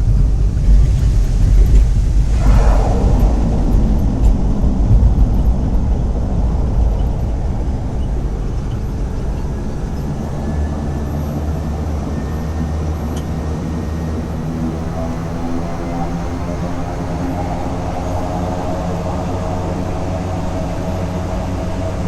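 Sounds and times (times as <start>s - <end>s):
propeller engine drone: 2.2s - 22.0s.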